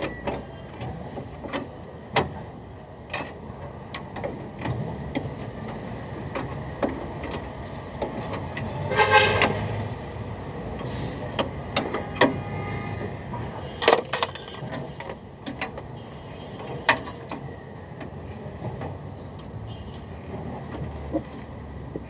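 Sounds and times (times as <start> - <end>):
passing road traffic: 0.0 - 22.0
sharp knocks and clinks: 13.8 - 15.1.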